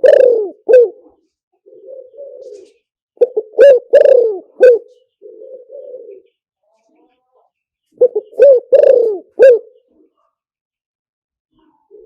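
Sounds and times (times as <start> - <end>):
dove cooing: 0.0 - 6.3, 8.0 - 9.9.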